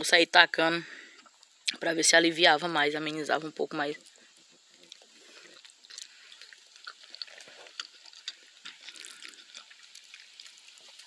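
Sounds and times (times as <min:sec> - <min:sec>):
wet chewing with small clicks: 0:01.1 - 0:01.9, 0:04.0 - 0:11.0.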